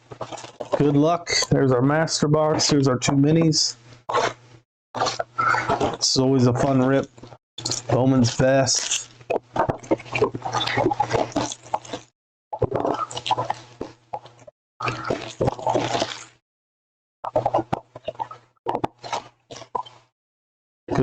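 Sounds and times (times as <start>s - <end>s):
foil packs crinkling and rustling: 0.2s - 0.9s.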